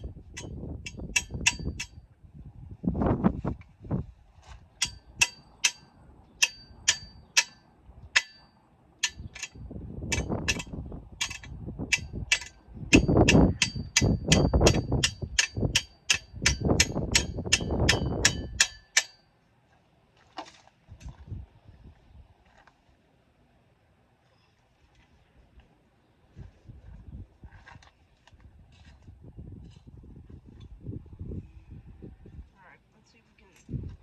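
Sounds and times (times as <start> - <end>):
low rumbling handling noise: 0.0 - 19.1
tool tapping metal bike parts: 0.4 - 2.0, 4.8 - 7.6, 8.2 - 19.2.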